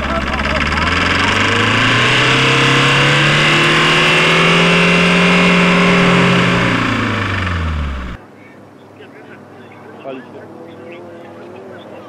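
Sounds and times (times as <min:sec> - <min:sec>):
car engine running at high revs: 0:00.0 - 0:08.2.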